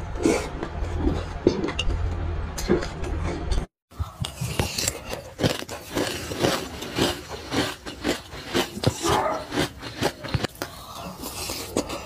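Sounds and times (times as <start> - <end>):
chewing crunchy seeds: 4.0 - 12.0.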